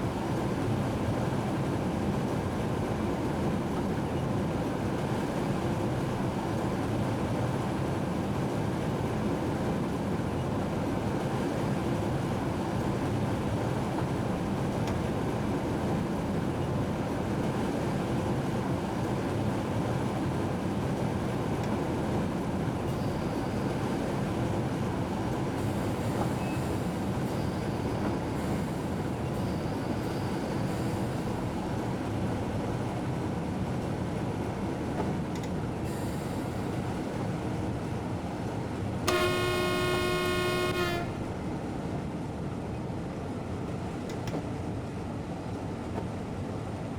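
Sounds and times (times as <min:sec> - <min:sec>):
train rumbling: 0:00.0 - 0:46.9
faint high whine: 0:39.1 - 0:41.4.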